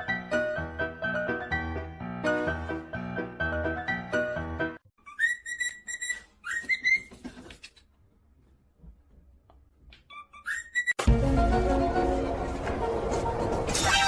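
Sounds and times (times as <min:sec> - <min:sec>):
piano tune: 0:00.0 - 0:04.8.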